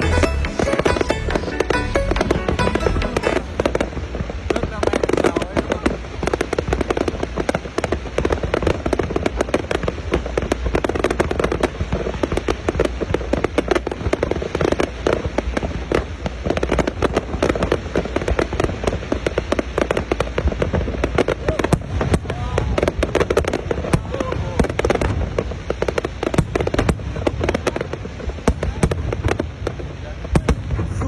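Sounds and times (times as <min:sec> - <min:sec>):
fireworks bangs and crackles: 0:00.0 - 0:31.0.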